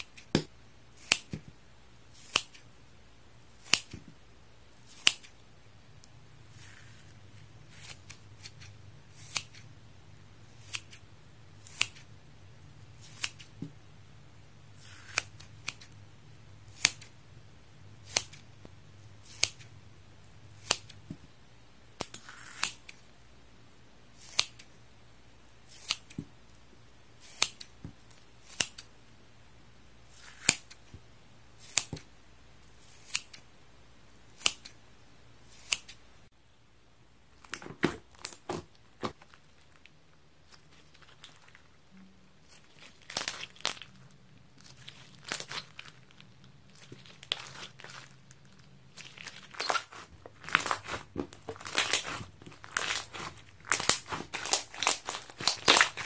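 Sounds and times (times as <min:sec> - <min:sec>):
scissors snipping sponge: 0:00.0 - 0:01.5, 0:02.1 - 0:02.6, 0:03.6 - 0:04.0, 0:07.7 - 0:09.6, 0:11.6 - 0:12.1, 0:14.8 - 0:15.9, 0:16.7 - 0:17.1, 0:18.0 - 0:18.4, 0:31.6 - 0:32.0
crackling crinkling sounds: 0:37.3 - 0:56.0.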